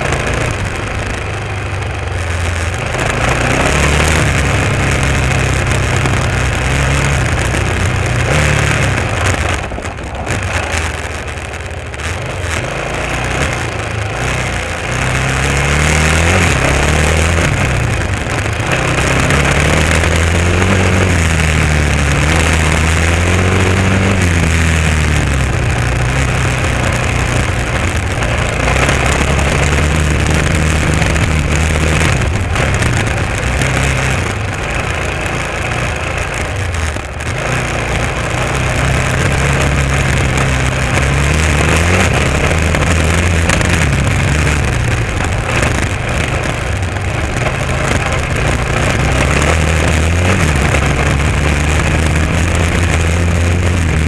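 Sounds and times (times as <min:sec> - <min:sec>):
motorcycle engine revving: 0:00.0 - 0:54.0
wind and tyres on gravel: 0:00.0 - 0:54.0.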